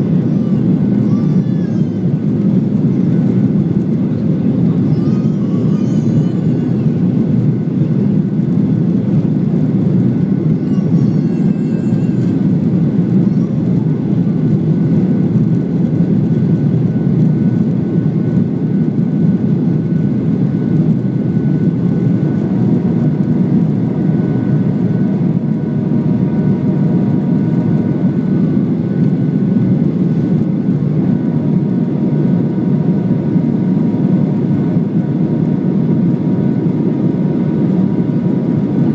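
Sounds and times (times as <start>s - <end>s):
jet engine and airflow roar: 0.0s - 38.9s
faint whining tones: 10.0s - 14.4s.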